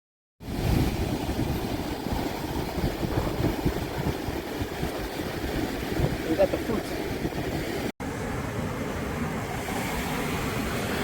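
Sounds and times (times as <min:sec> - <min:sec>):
wind buffeting microphone: 0:00.4 - 0:07.9.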